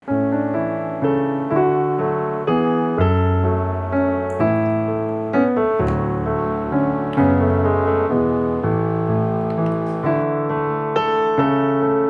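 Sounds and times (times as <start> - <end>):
gentle piano chords: 0.0 - 12.0.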